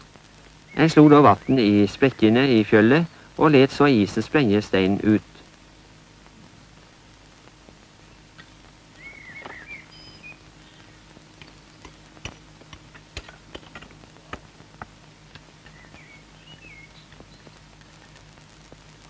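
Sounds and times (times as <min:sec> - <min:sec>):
steady low hum: 0:00.0 - 0:19.0
faint bird chirps: 0:00.6 - 0:02.1, 0:08.0 - 0:12.0, 0:15.6 - 0:18.3
sharp clicks and taps: 0:11.4 - 0:16.0.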